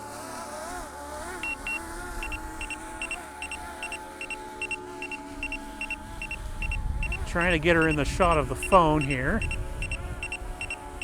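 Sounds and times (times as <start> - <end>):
drone propellers whining: 0.0 - 11.0
high warning beeps: 1.4 - 1.8, 7.8 - 10.8.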